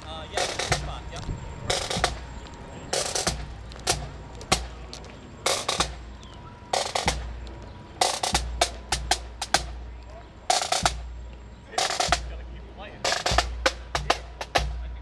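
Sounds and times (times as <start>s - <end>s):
marching snare drums: 0.0s - 15.0s.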